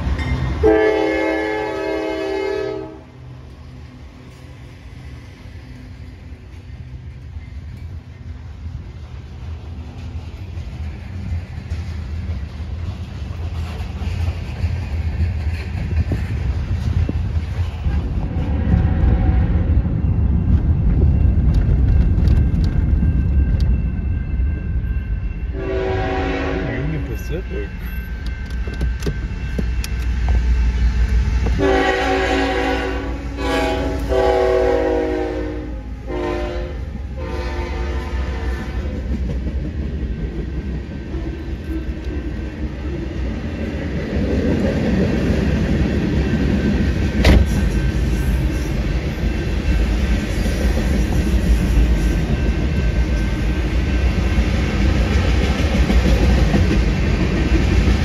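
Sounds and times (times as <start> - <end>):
train wheels rumbling on rails: 0.0 - 58.0
train air horn blasts: 0.6 - 3.1, 25.5 - 27.0, 31.6 - 38.9.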